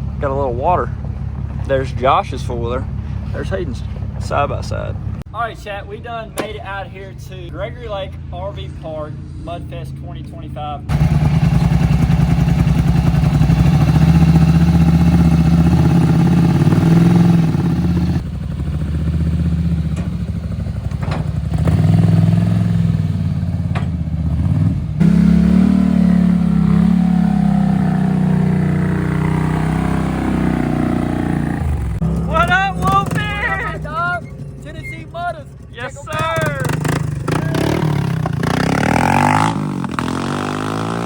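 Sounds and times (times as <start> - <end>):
vehicle engine running: 10.9 - 39.2.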